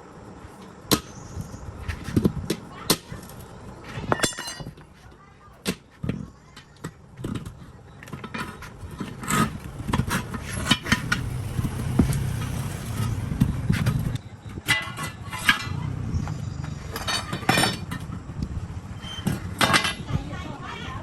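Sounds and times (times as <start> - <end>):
metal tools clinking: 4.1 - 4.8, 13.9 - 15.8, 16.7 - 18.2, 19.0 - 20.1
low engine hum: 9.6 - 21.0.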